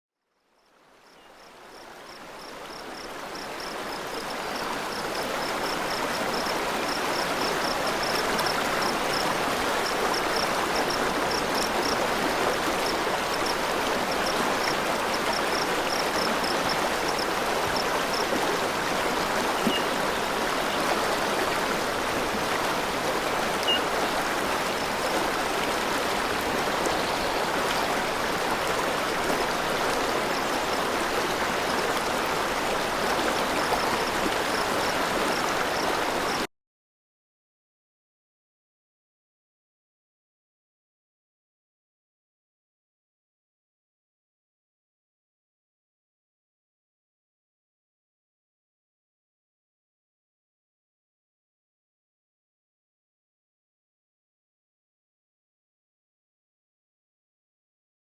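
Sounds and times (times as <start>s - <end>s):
running water of mountain stream: 0.4s - 36.5s.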